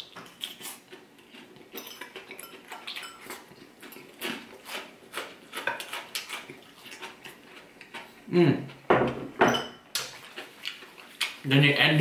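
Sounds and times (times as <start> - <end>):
chewing crunchy salad: 0.0 - 8.9, 9.9 - 11.5
fork clinking against bowl: 1.8 - 3.4.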